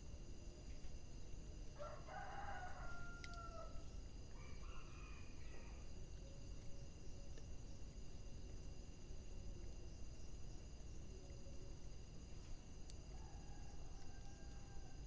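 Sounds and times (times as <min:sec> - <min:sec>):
low background noise: 0:00.0 - 0:15.0
rooster crowing: 0:01.8 - 0:05.8, 0:13.1 - 0:15.0.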